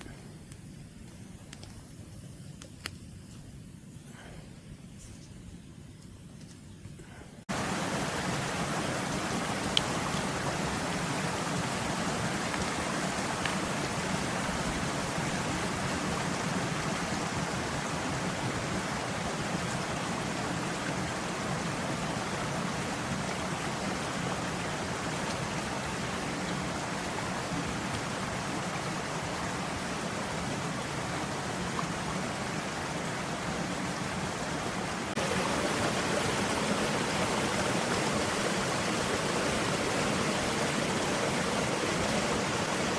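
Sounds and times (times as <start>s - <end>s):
stream water rushing: 7.5s - 42.9s.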